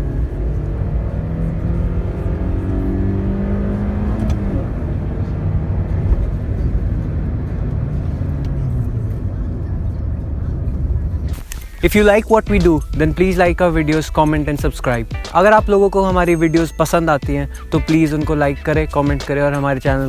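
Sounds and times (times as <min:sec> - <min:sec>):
car engine accelerating: 0:00.0 - 0:15.2
road and wind rumble: 0:00.0 - 0:20.0.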